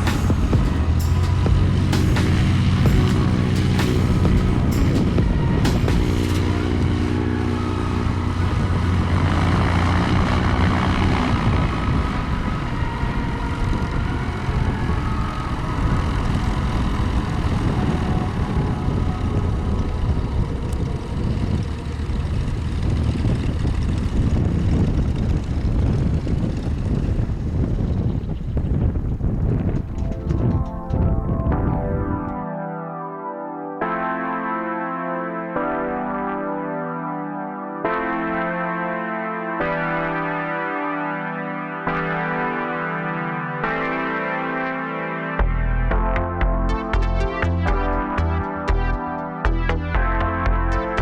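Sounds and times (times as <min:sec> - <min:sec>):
piston aircraft engines droning: 0:00.0 - 0:32.4.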